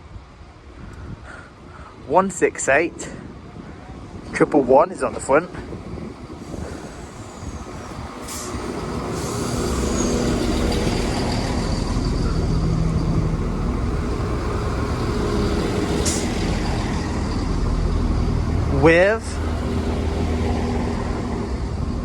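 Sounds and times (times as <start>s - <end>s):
train diesel engines: 0.0s - 22.0s
air hisses: 6.4s - 12.4s.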